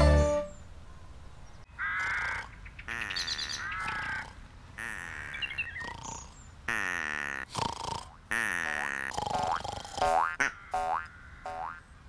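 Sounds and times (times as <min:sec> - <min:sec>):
wavering bird calls: 0:01.5 - 0:06.5.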